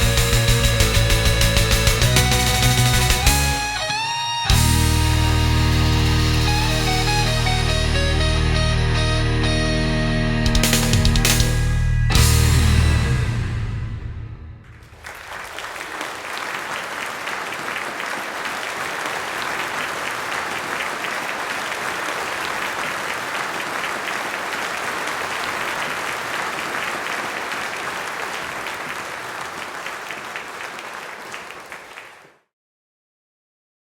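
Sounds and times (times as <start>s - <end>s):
audience applauding: 0.0s - 4.9s, 14.7s - 32.5s.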